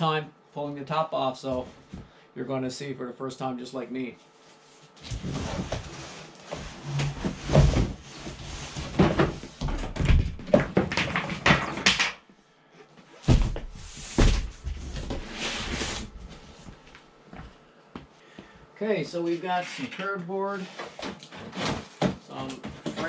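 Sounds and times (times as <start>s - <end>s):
cardboard scraping and rustling: 19.8s - 23.0s.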